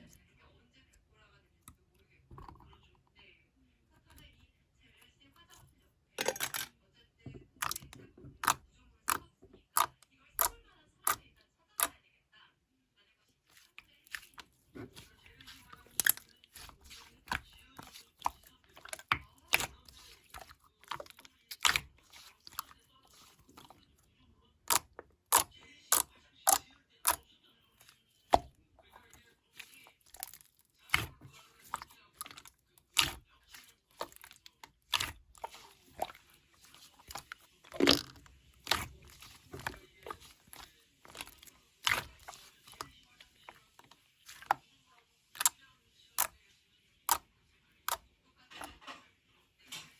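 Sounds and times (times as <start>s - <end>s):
clay cracking: 14.0s - 23.8s, 24.7s - 27.2s, 27.8s - 44.6s.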